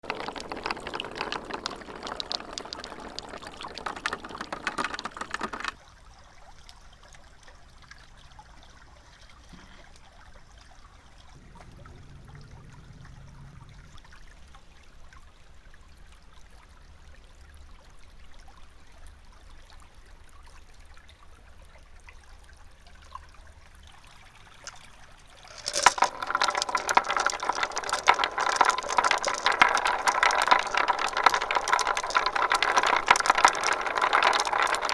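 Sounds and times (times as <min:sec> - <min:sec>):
marbles clattering down plastic track: 0:00.0 - 0:05.8, 0:24.1 - 0:34.9
faint low hum: 0:11.4 - 0:14.9.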